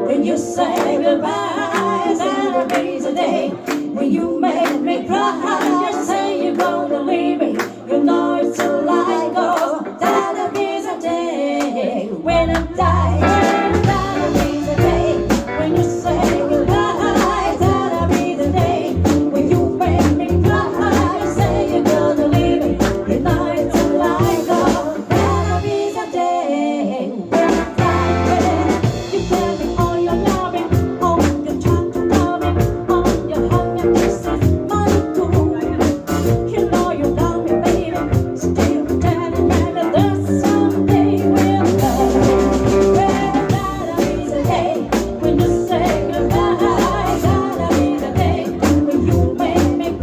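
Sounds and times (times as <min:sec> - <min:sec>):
guitar accompaniment: 0:00.0 - 0:11.3, 0:12.5 - 0:26.2, 0:27.2 - 0:50.0
person singing: 0:00.0 - 0:50.0
heavy bass: 0:12.4 - 0:25.7, 0:27.4 - 0:50.0.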